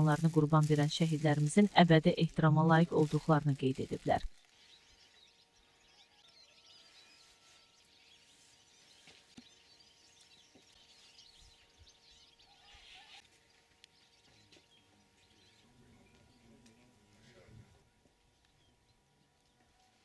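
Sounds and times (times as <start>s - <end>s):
low steady hum: 0.0s - 20.0s
faint bird chirps: 4.2s - 16.6s.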